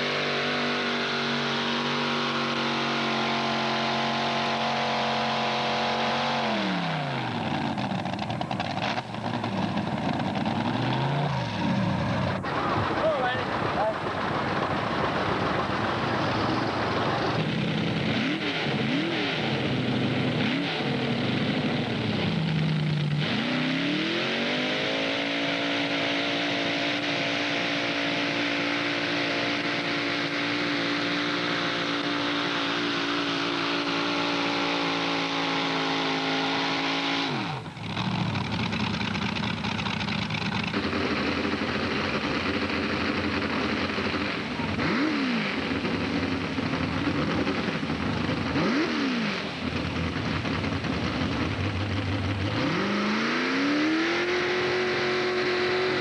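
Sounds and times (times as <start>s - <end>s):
tractor engine revving: 0.0s - 56.0s.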